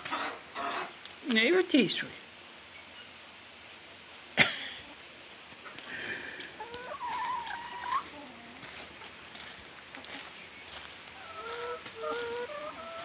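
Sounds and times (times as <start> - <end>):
chickens calling: 0.0 - 1.1, 5.6 - 13.0.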